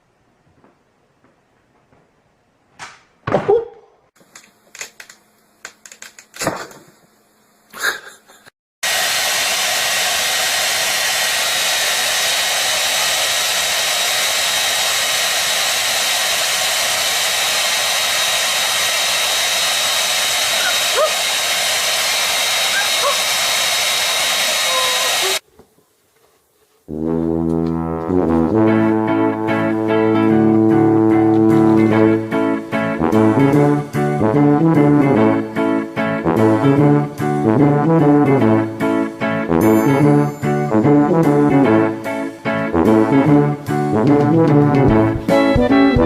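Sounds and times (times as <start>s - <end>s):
electric blower motor rushing: 8.8s - 25.4s.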